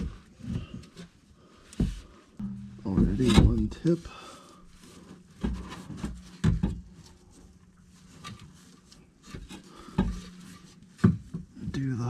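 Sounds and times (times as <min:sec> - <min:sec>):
steady low hum: 0:00.1 - 0:12.0
metal knocks and clunks: 0:02.4 - 0:04.0, 0:05.3 - 0:08.4, 0:09.4 - 0:11.6.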